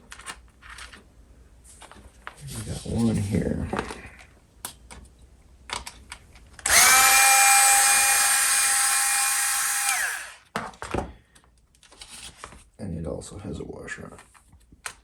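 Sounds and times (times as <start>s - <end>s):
power drill-driver running: 6.6s - 10.4s.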